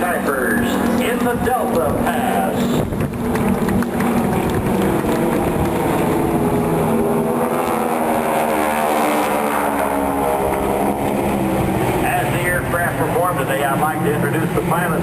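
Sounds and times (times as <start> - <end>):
propeller aircraft droning overhead: 0.0 - 15.0.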